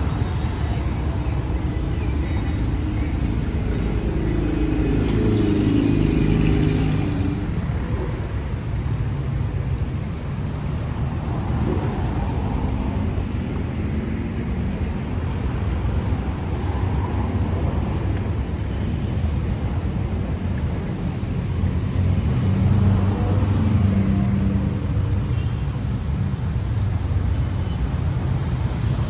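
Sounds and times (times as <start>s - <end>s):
street traffic rumble: 0.0s - 29.0s
vehicle passing close: 4.0s - 8.8s.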